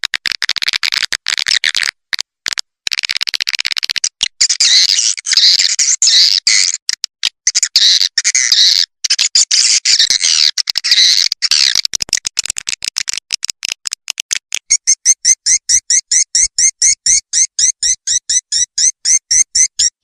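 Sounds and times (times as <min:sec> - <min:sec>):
rapid sharp clicks: 0:00.0 - 0:04.4, 0:10.2 - 0:14.8
high chirping twitters: 0:01.3 - 0:20.0.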